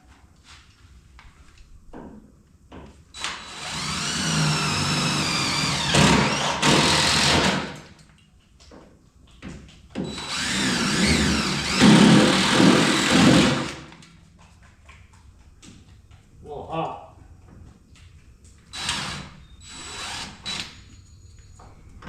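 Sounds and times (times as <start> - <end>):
power drill grinding through metal: 3.2 - 7.9, 10.0 - 14.0, 18.7 - 20.9.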